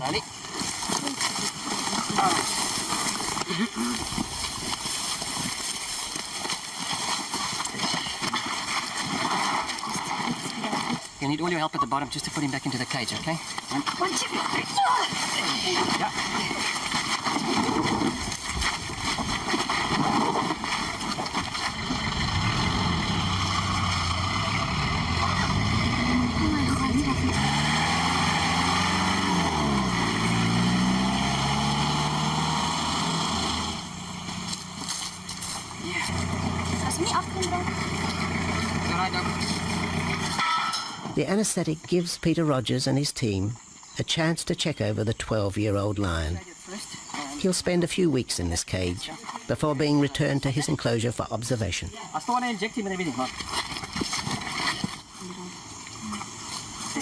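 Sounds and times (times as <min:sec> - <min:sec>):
shuffling footsteps: 0:00.3 - 0:09.8, 0:33.8 - 0:40.4
vehicle engine running: 0:21.3 - 0:41.2.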